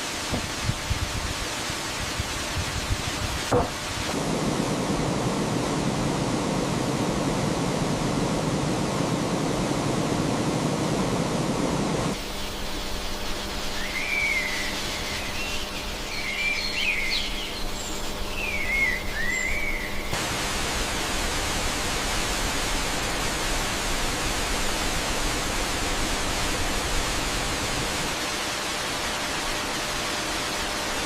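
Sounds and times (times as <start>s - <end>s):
steady rushing noise: 0.0s - 14.0s, 20.1s - 31.0s
birds chirping: 13.8s - 20.1s.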